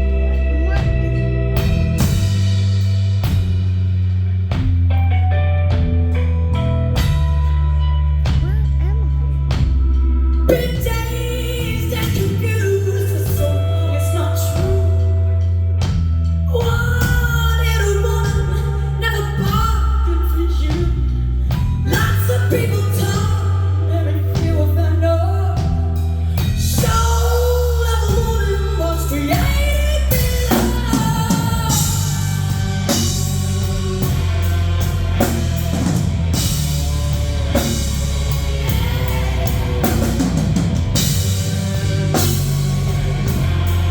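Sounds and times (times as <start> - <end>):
live band with bass and drums: 0.0 - 43.9
woman singing: 10.5 - 15.6, 16.5 - 33.7, 38.6 - 40.4.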